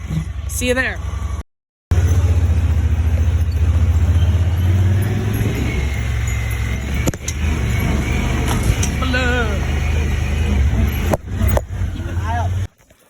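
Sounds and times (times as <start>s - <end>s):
buggy engine running: 0.0s - 12.8s.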